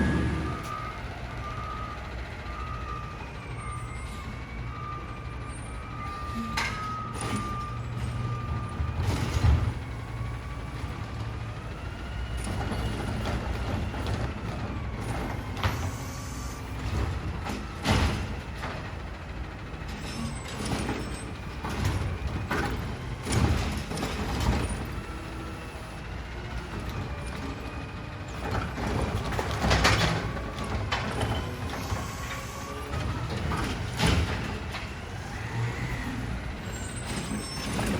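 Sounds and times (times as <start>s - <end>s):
garbage truck diesel engine whine: 0.0s - 37.9s
loud clanks and knocks: 16.6s - 25.2s, 28.4s - 35.9s, 36.7s - 37.9s.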